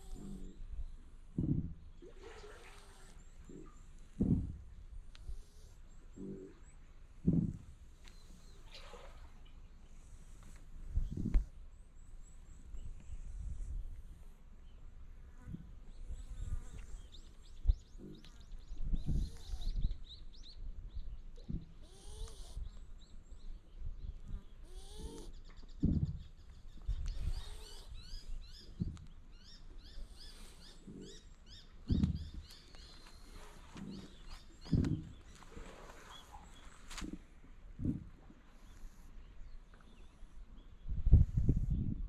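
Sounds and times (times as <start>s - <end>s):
small birds chirping: 0.0s - 2.2s, 2.8s - 42.0s
thumps: 1.4s - 1.8s, 4.1s - 4.7s, 7.2s - 7.8s, 31.9s - 32.5s, 33.8s - 35.3s.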